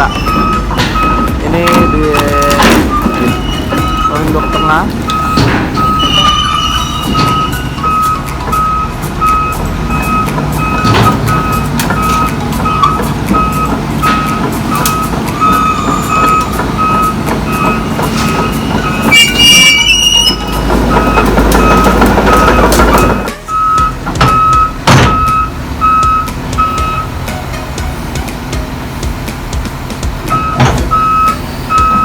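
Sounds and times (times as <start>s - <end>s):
excavator travel alarm beeping: 0.0s - 28.0s, 30.3s - 32.0s
diesel engine running: 0.0s - 32.0s
brief high squeal: 5.9s - 7.6s, 18.9s - 20.6s
sharp metallic knocks: 20.4s - 27.1s.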